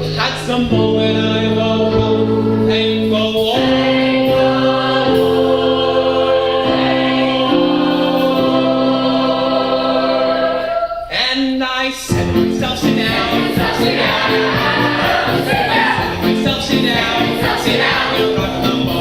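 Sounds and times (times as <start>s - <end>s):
ensemble singing in harmony: 0.0s - 11.4s, 12.2s - 19.0s.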